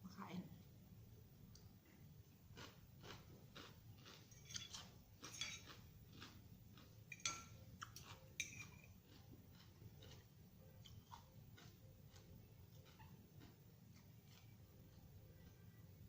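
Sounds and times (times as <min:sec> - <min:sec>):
crunchy chewing: 0:02.5 - 0:16.0
cutlery clinking against dish: 0:04.4 - 0:05.8, 0:07.1 - 0:09.0.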